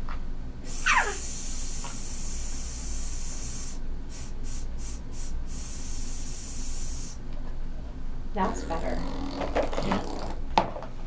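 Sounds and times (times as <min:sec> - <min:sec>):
person hissing: 0:00.7 - 0:07.2.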